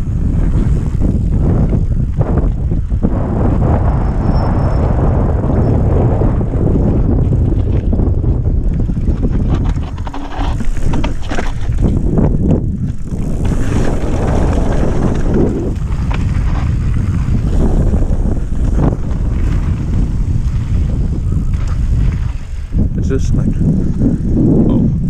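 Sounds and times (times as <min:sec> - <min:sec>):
bike rattling and knocking: 0:00.0 - 0:03.6, 0:05.2 - 0:25.0
wind buffeting microphone: 0:00.0 - 0:25.0
tyres rolling over dirt: 0:06.8 - 0:22.7.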